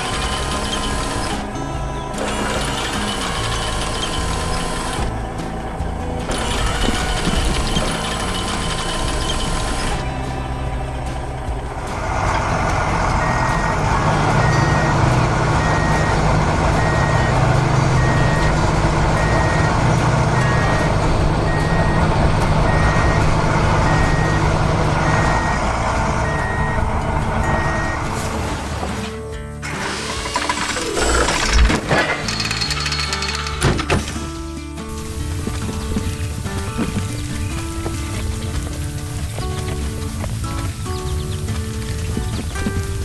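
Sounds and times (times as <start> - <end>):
truck engine running: 0.0 - 43.0
reversing alarm beeping: 13.2 - 28.3.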